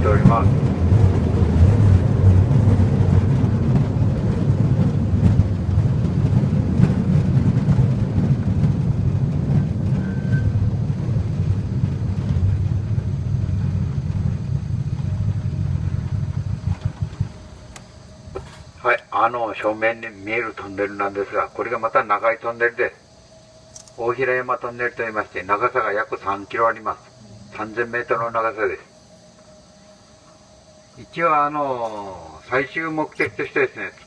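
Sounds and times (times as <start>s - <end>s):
rail cart rumbling on track: 0.0s - 34.0s.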